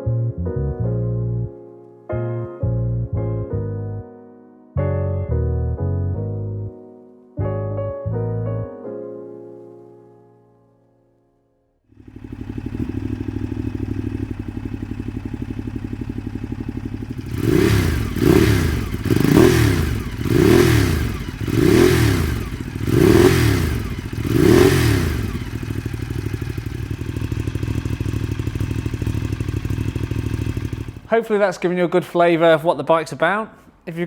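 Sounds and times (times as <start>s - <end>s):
motorcycle engine idling and revving: 12.0s - 31.1s.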